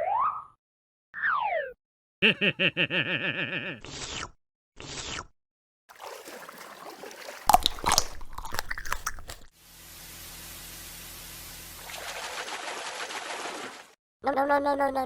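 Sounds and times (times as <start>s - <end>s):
crunching and chewing: 7.4s - 9.5s
steady even hiss: 9.6s - 11.7s.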